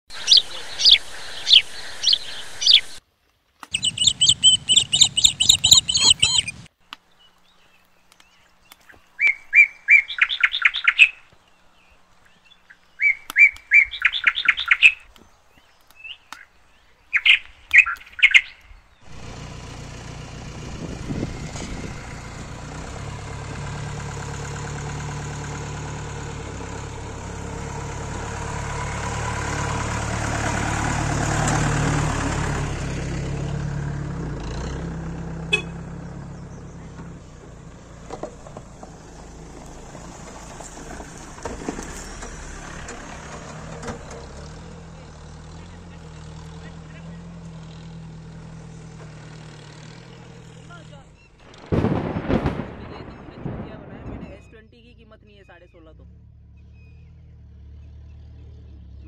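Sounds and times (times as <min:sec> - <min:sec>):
birds chirping trills: 0:00.1 - 0:03.0, 0:03.7 - 0:29.9, 0:35.4 - 0:59.0
vehicle engine running: 0:00.1 - 0:03.0, 0:03.7 - 0:06.8, 0:19.0 - 0:59.0.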